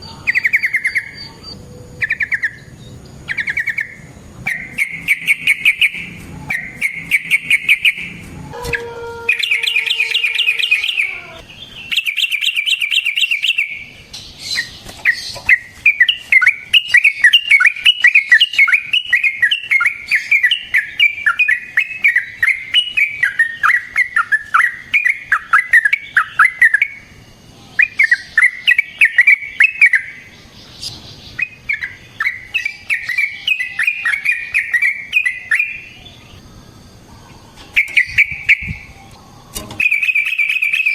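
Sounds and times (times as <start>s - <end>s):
bird singing chattering trills: 0.0s - 40.9s.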